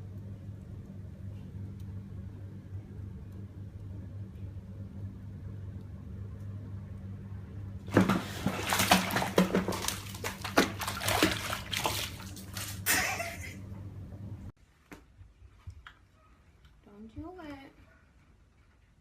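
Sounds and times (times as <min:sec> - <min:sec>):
steady low hum: 0:00.0 - 0:14.6
water splashing and sloshing: 0:07.8 - 0:13.7.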